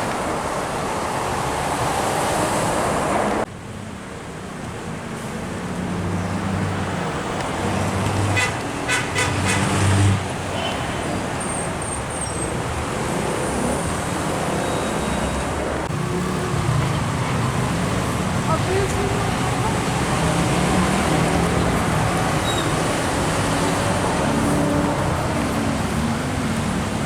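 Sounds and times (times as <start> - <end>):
tyre and traffic noise: 0.0 - 27.0
heavy vehicle engine drone: 12.6 - 27.0.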